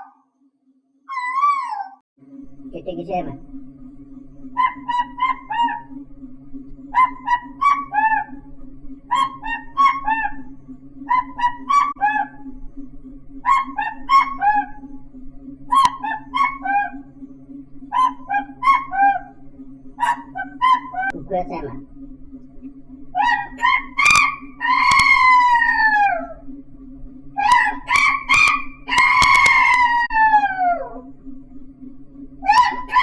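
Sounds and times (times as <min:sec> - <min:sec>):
steady low hum: 0:02.2 - 0:33.0
person imitating bird call: 0:18.0 - 0:19.3, 0:20.0 - 0:21.7, 0:23.2 - 0:26.4, 0:27.4 - 0:31.0, 0:32.5 - 0:33.0.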